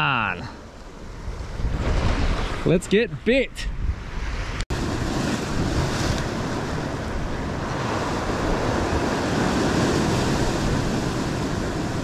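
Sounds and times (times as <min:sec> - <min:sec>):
wind buffeting microphone: 0:00.9 - 0:02.7, 0:03.6 - 0:12.0
ocean surf on rocks: 0:03.8 - 0:12.0.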